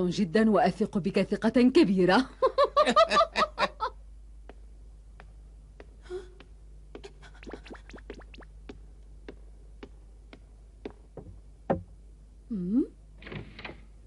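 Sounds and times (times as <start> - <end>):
faint low hum: 0.0 - 14.0
loud knock: 11.2 - 12.0.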